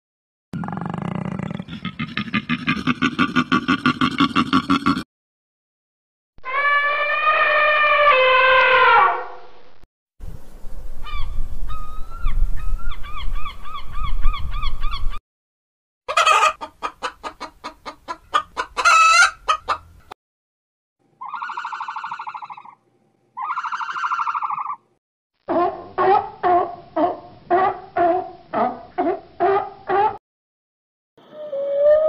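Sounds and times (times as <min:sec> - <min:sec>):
chickens clucking and squawking: 0:16.1 - 0:20.1, 0:21.2 - 0:22.8, 0:23.4 - 0:24.8.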